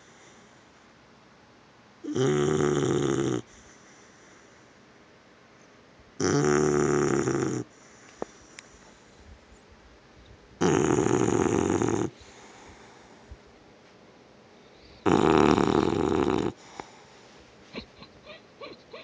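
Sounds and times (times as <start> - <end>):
puppy snoring: 2.0 - 3.7, 6.2 - 7.8, 10.6 - 12.5, 15.0 - 16.8.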